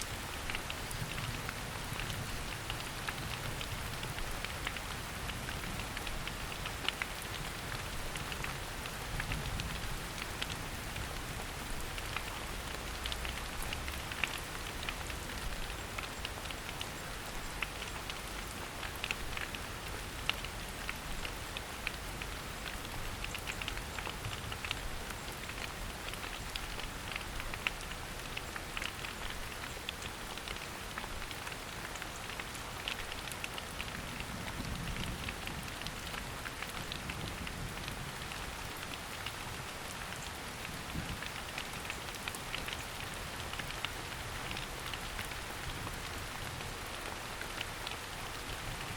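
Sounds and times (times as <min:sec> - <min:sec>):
rain falling in a forest: 0:00.0 - 0:48.9
raindrops striking close by: 0:00.0 - 0:48.9.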